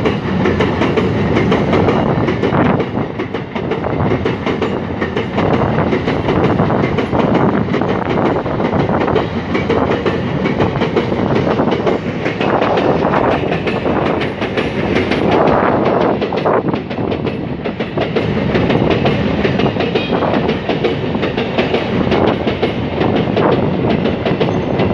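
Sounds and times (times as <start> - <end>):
train wheels clattering over rail joints: 0.0 - 24.9.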